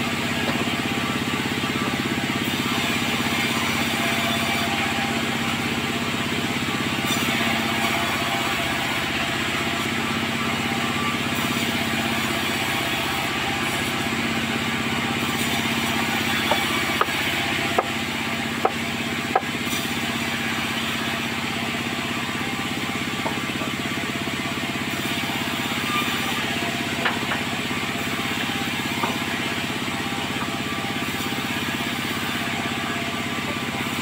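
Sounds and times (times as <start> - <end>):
sawmill machinery running: 0.0 - 34.0.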